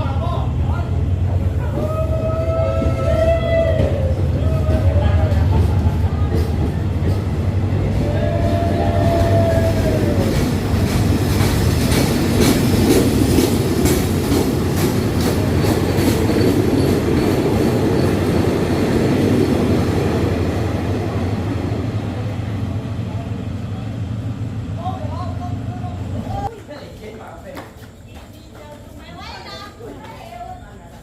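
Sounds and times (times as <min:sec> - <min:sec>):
train rumbling past: 0:00.0 - 0:26.6
wheels clacking over rail joints: 0:01.3 - 0:21.6.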